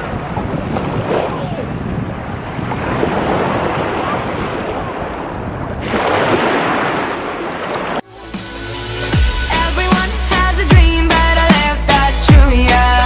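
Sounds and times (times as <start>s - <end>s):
wind buffeting microphone: 0.0s - 8.0s
surf washing in: 0.0s - 8.8s.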